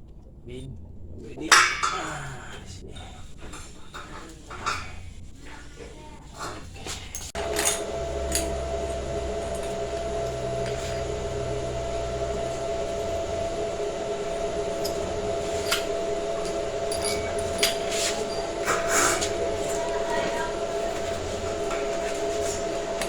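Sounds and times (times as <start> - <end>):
low rumble: 7.4 - 23.0
machine hum: 7.4 - 23.0.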